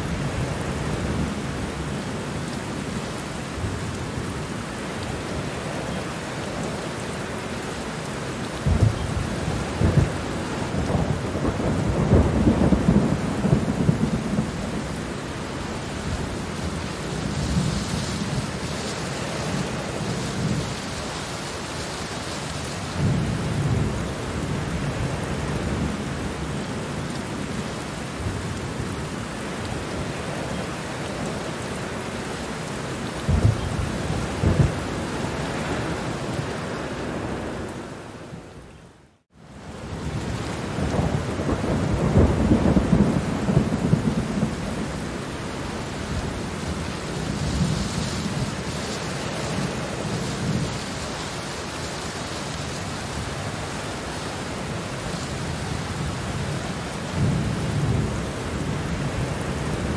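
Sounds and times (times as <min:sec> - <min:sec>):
steady rain falling: 0:00.0 - 0:59.9
low thunder rumbles: 0:08.6 - 0:18.7, 0:33.2 - 0:36.4, 0:39.8 - 0:48.7.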